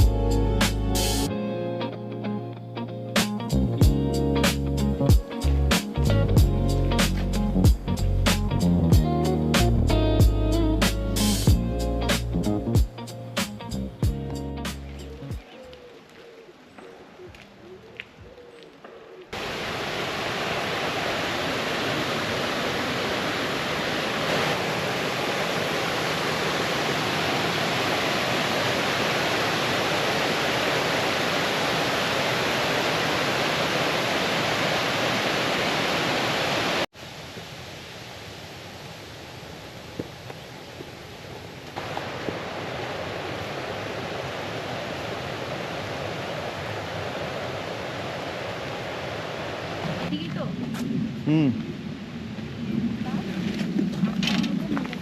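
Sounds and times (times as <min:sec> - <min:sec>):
brook water rushing over stones: 0:19.4 - 0:50.2.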